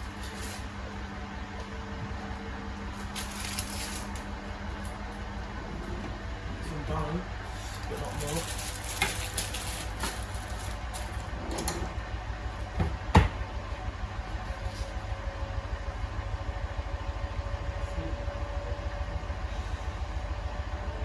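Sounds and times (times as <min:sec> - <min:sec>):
washing machine drum pulsing: 0:01.7 - 0:21.0
sharp knocks: 0:12.8 - 0:13.4.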